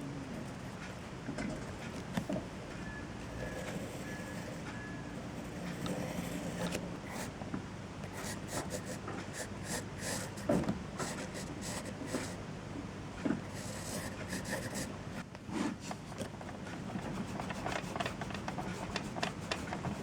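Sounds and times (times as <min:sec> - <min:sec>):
rubbing and scratching: 0:16.8 - 0:20.0.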